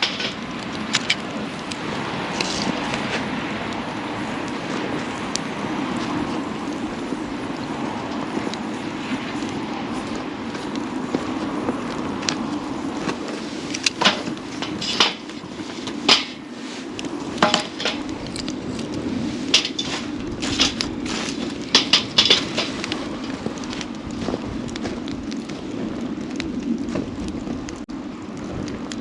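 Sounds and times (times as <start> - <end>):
campfire pops and snaps: 0.0 - 29.0
low rushing hiss of fire: 0.0 - 29.0.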